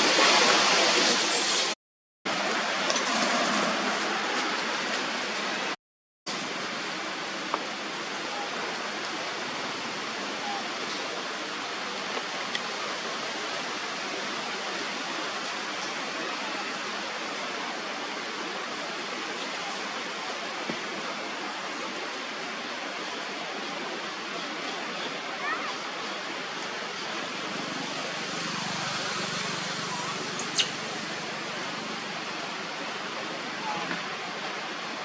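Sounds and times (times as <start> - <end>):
steady rushing hiss: 26.4 - 33.5.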